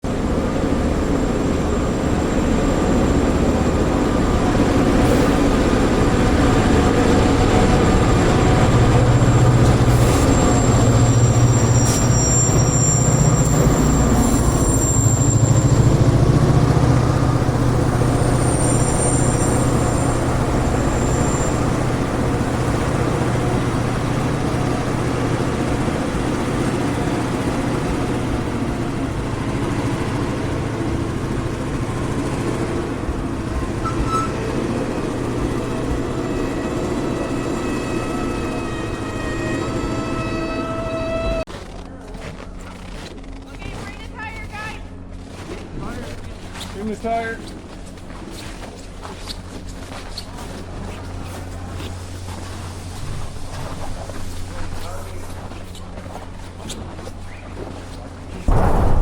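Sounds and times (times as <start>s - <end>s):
low engine hum: 0.0s - 40.2s, 47.4s - 59.0s
road noise: 0.0s - 41.5s
high-pitched squeals: 0.8s - 23.1s, 33.3s - 41.5s.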